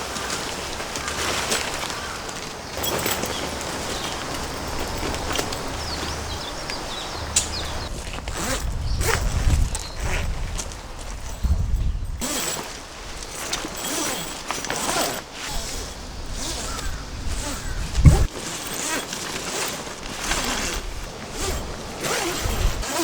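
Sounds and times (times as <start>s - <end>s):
rustling handling noise: 0.0s - 23.0s
sharp clicks: 2.8s - 7.9s
heavy low rumbling: 15.6s - 18.3s.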